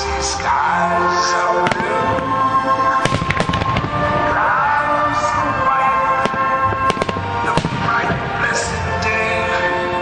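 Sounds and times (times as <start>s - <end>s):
music playing: 0.0s - 10.0s
fireworks bangs and crackles: 1.4s - 10.0s.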